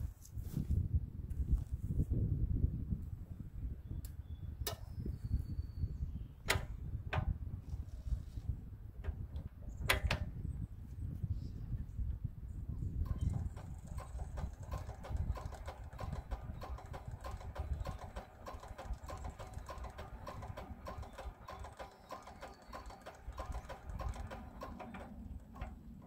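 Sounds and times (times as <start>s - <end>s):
diesel engine knocking: 13.2s - 26.0s.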